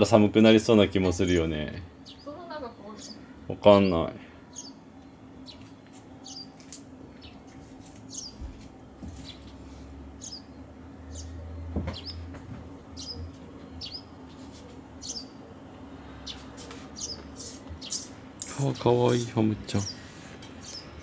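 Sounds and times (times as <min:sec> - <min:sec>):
low steady hum: 0:00.0 - 0:21.0
small bird chirping: 0:02.0 - 0:08.4, 0:09.2 - 0:09.5, 0:10.2 - 0:12.3, 0:13.0 - 0:14.2, 0:15.0 - 0:15.4, 0:16.2 - 0:21.0.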